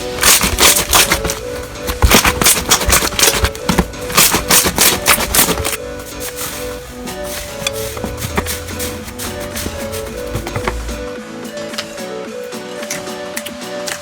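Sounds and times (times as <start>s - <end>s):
slime crackling and popping: 0.0s - 5.8s
background music: 0.0s - 14.0s.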